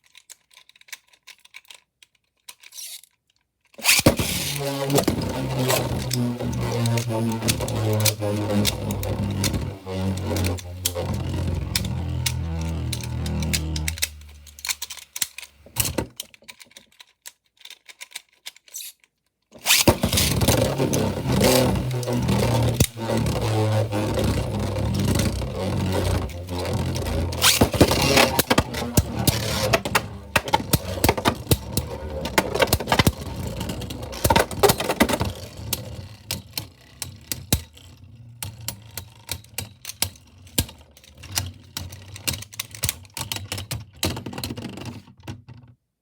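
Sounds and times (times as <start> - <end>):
spinning tops whirring: 3.8 - 15.8, 19.6 - 35.4.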